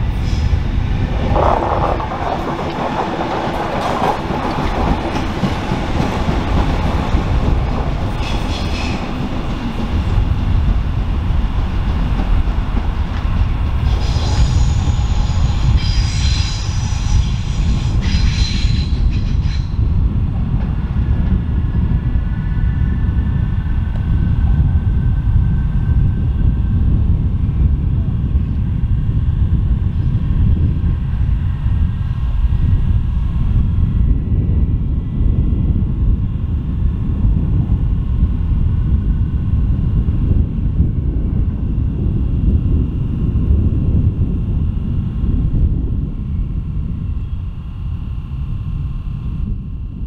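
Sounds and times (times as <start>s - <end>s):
electric train rumbling: 0.0s - 50.0s
high-pitched wheel squeal: 13.9s - 19.8s.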